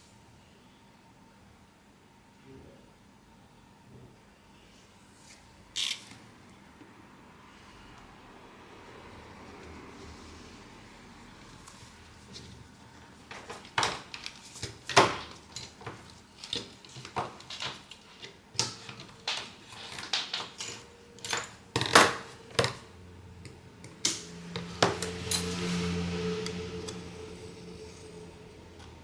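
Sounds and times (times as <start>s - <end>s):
small metal tools clicking and tapping: 23.4s - 25.7s.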